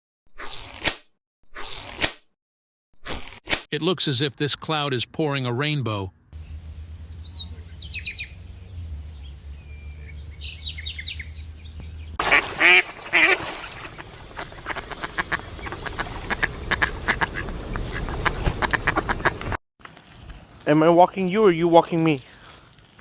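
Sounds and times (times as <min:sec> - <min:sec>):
faint chirps: 0:06.4 - 0:12.2
swans honking: 0:12.2 - 0:19.6.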